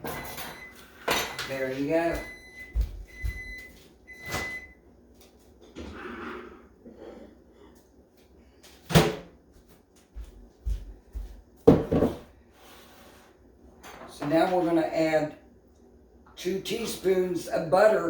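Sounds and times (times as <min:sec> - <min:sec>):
microwave beep: 0:00.1 - 0:04.9.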